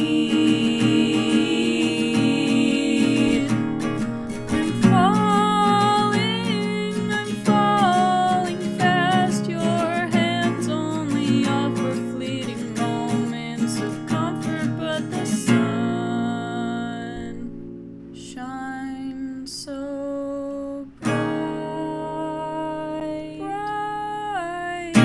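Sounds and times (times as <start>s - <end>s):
person singing wordless held notes: 0.0s - 3.8s
acoustic guitar strummed: 0.0s - 19.1s, 21.0s - 25.0s.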